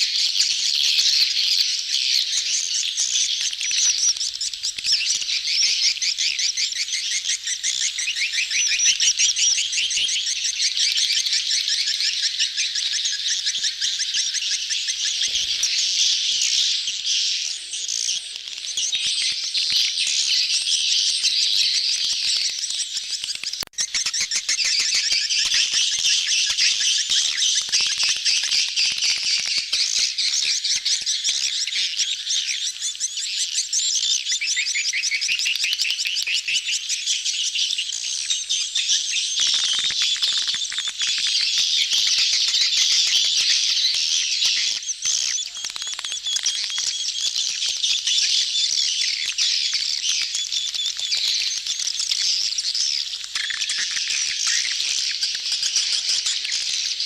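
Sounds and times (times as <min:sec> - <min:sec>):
swiftlets chirping: 0:39.0 - 0:57.0.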